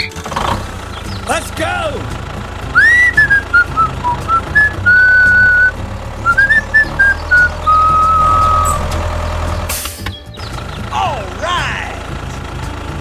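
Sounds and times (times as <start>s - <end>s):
person whistling a tune: 2.8s - 9.0s.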